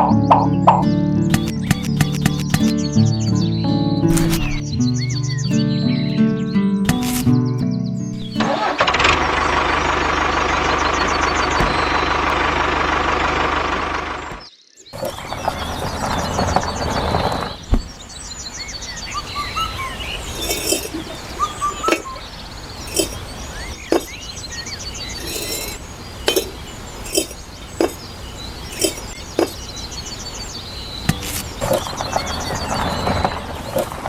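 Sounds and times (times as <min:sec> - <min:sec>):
small birds chirping: 0:00.0 - 0:34.0
light sharp clinks: 0:22.8 - 0:23.2, 0:25.2 - 0:28.0, 0:28.7 - 0:29.6.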